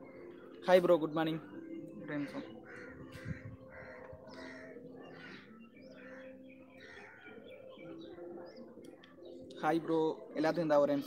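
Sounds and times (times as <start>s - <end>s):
faint bird calls: 1.4s - 10.5s.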